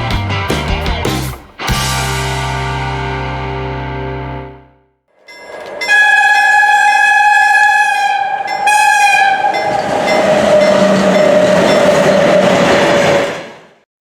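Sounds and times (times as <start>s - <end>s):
train rushing past: 5.2s - 13.8s
locomotive horn: 5.8s - 13.3s.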